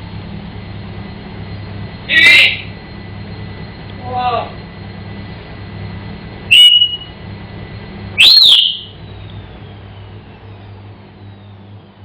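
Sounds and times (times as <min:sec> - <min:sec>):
parrot whistling: 0:06.5 - 0:07.1, 0:08.2 - 0:09.0.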